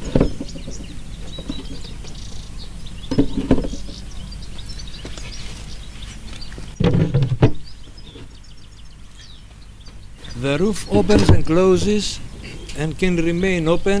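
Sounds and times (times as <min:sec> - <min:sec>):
birds chirping: 0:00.0 - 0:14.0
knocks of beehive roof handled: 0:06.8 - 0:08.3, 0:10.9 - 0:12.0.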